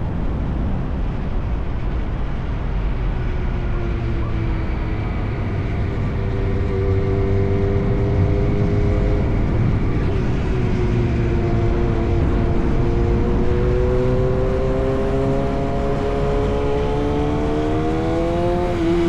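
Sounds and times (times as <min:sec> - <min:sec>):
motorcycle engine revving: 0:05.9 - 0:19.0.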